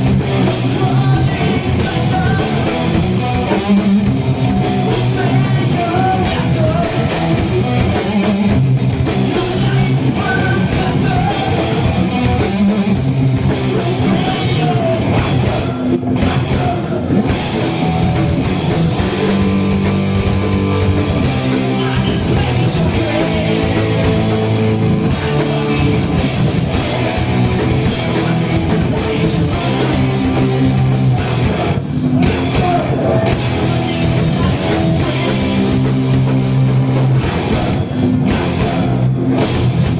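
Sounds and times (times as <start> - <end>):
heavy metal band playing: 0.0 - 39.9.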